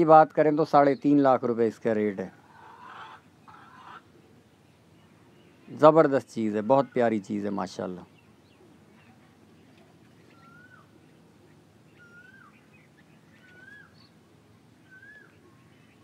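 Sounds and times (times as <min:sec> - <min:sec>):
low background noise: 0:00.0 - 0:16.0
high bird chirps: 0:10.0 - 0:11.2, 0:11.9 - 0:14.2, 0:14.8 - 0:16.0
whistled bird call: 0:10.3 - 0:10.9, 0:11.9 - 0:14.2, 0:14.8 - 0:15.5.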